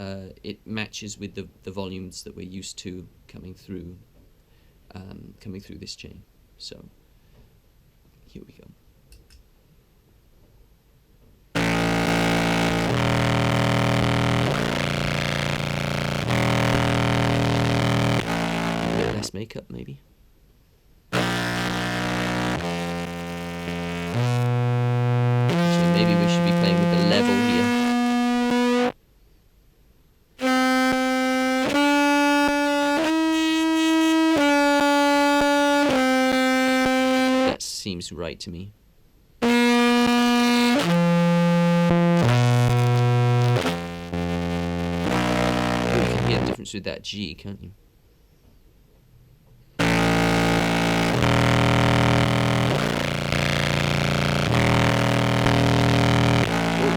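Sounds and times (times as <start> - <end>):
distorted contrabass clarinet notes: 11.6 - 19.3, 21.2 - 28.9, 30.4 - 37.5, 39.4 - 46.6, 49.8 - 56.9.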